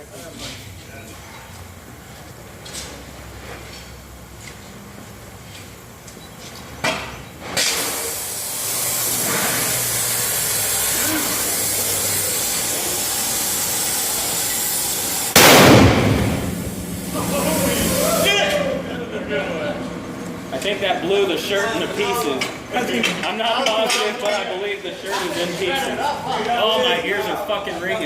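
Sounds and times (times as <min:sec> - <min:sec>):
gas hissing: 0:07.2 - 0:18.9
propane cannon blast: 0:15.1 - 0:18.3.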